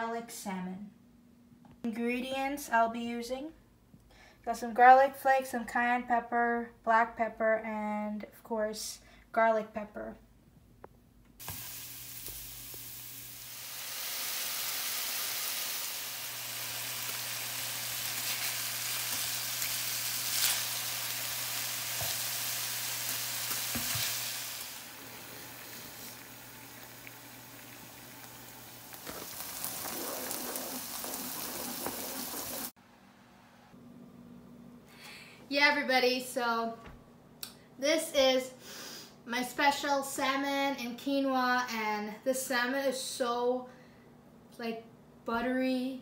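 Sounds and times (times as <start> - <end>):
food sizzling in a frying pan: 11.4 - 32.8
spatula stirring: 29.0 - 32.7.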